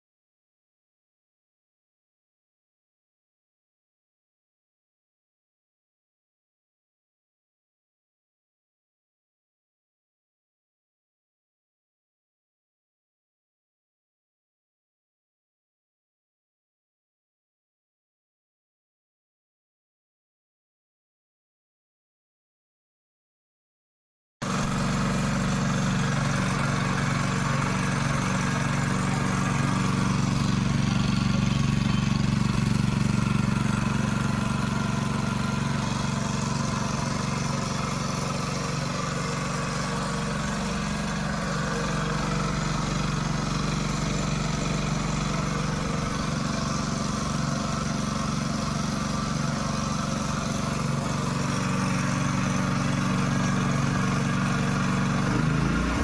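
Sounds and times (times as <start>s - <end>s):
small petrol engine running: 24.4s - 56.0s.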